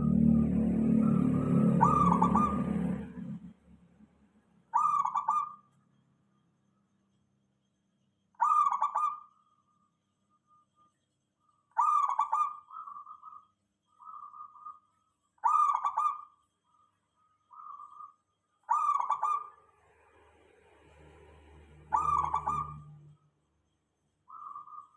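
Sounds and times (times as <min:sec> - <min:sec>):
dove cooing: 0:00.0 - 0:03.3, 0:04.7 - 0:05.6, 0:08.4 - 0:09.3, 0:11.8 - 0:13.4, 0:15.4 - 0:16.3, 0:18.7 - 0:19.6, 0:21.8 - 0:23.0.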